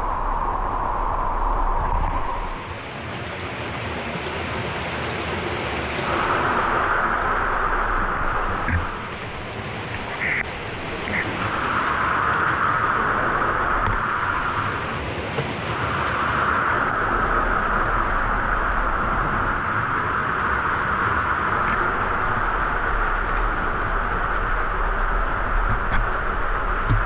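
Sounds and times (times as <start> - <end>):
waterfall rushing: 2.2 - 7.1.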